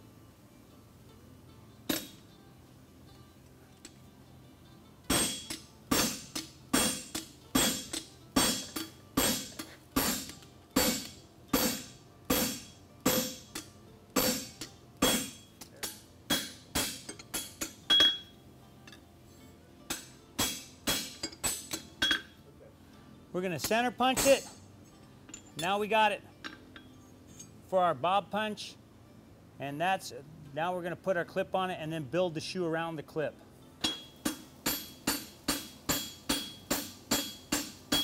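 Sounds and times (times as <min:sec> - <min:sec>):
hammer striking horseshoe on anvil: 0:01.9 - 0:02.2, 0:05.1 - 0:19.0, 0:19.9 - 0:22.4, 0:23.6 - 0:24.6, 0:25.3 - 0:25.8, 0:33.8 - 0:38.0.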